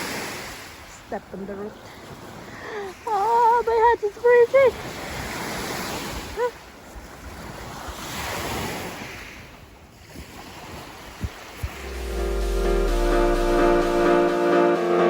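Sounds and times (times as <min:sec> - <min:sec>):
wind rushing: 0:11.2 - 0:14.4.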